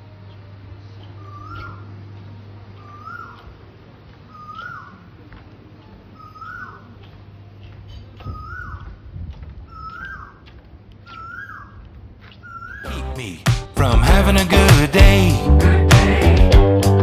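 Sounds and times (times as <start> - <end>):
steady low hum: 12.9 - 17.0.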